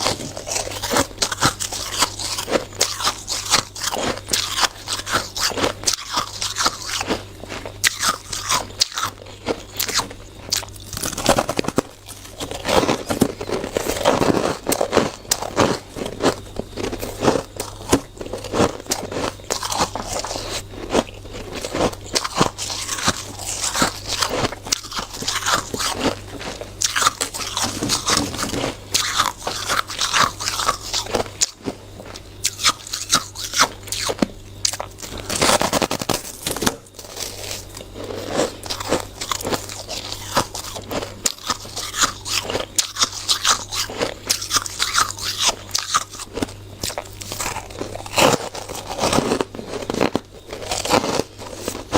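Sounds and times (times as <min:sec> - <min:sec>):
crunching shaved ice: 0:00.0 - 0:51.9
faint steady low hum: 0:00.0 - 0:51.9.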